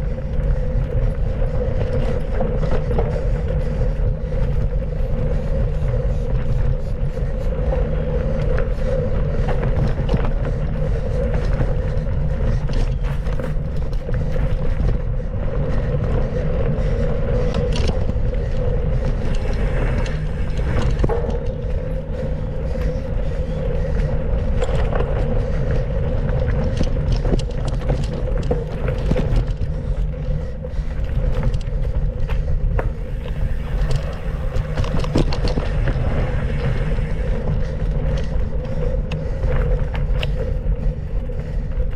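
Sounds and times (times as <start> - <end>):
bike rumbling over dirt: 0.0 - 41.9
small clicks and rattles: 17.4 - 41.9.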